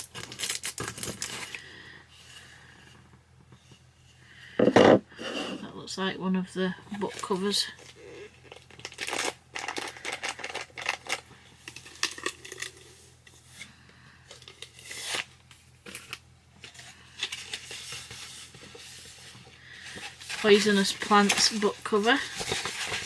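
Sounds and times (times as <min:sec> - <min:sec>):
paper rustling and scraping: 0:14.5 - 0:23.0.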